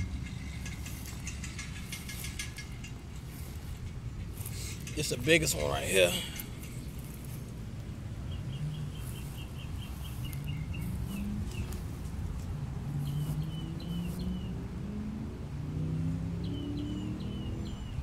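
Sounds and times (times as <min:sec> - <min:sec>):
low background rumble: 0:00.0 - 0:14.8
small bird chirping: 0:08.2 - 0:11.9, 0:13.0 - 0:14.6.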